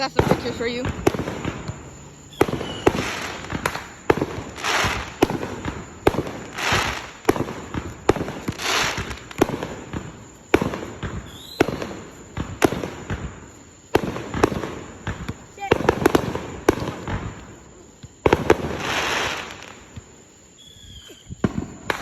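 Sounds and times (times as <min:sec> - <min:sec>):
fireworks bangs: 0:00.0 - 0:22.0
fireworks rushing crackles: 0:00.0 - 0:22.0.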